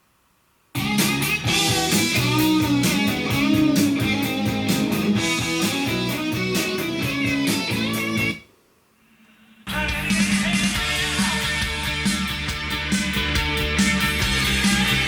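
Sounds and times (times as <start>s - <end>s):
guitar music with steady beat: 0.8s - 8.4s, 10.7s - 15.0s.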